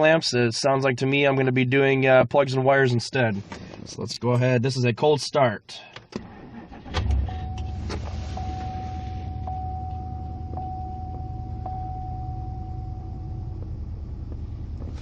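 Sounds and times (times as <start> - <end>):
car engine idling with misfire: 6.2 - 11.9
thin high tone: 8.4 - 13.6.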